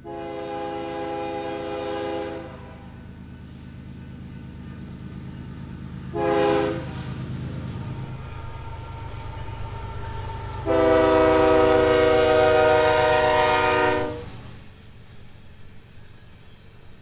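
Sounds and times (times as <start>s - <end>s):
locomotive air horn: 0.0s - 3.1s, 6.1s - 8.1s, 10.4s - 14.5s
locomotive engine rumble: 0.0s - 17.0s.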